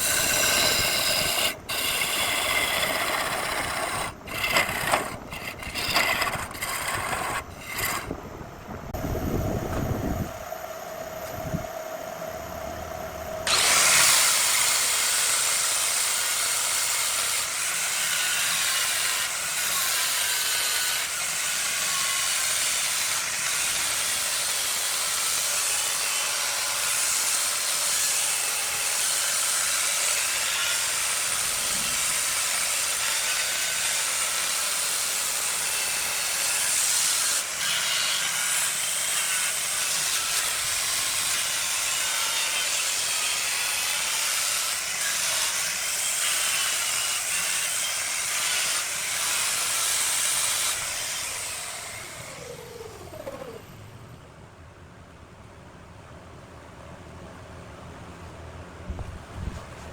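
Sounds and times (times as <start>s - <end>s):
lathe tool scraping wood: 0.0s - 8.2s, 13.5s - 14.9s.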